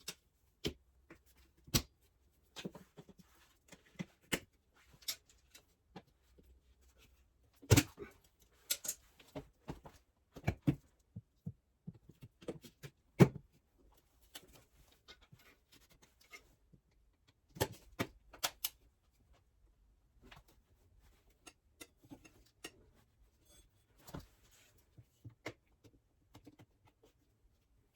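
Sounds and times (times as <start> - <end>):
tools and parts clinking: 8.6 - 9.2.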